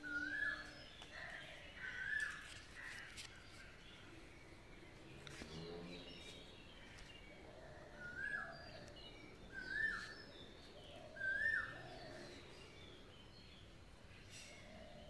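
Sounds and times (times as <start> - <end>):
bird calling: 0.0 - 3.6, 9.5 - 12.4.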